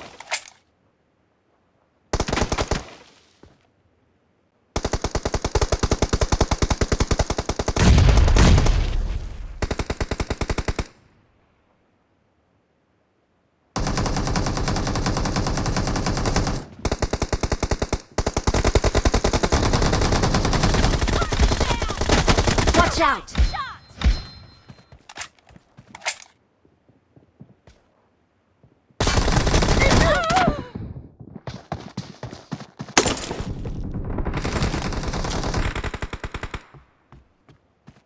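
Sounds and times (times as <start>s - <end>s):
video game automatic gunfire: 33.0s - 36.7s.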